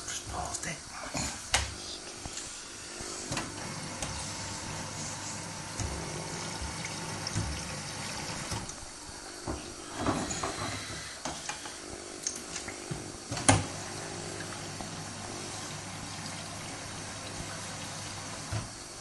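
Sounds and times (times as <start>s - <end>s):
washing machine low hum: 1.2s - 19.0s
water sloshing in washing machine: 3.2s - 19.0s
splashes and knocks: 6.6s - 7.7s.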